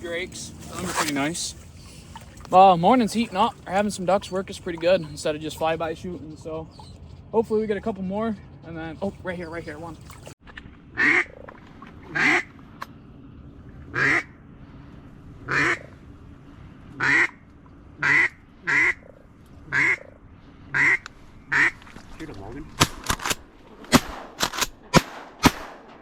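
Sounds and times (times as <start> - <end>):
duck call quacks: 12.1 - 12.5, 13.9 - 14.3, 15.5 - 15.8, 17.0 - 17.3, 18.0 - 19.0, 19.7 - 20.0, 20.7 - 21.8.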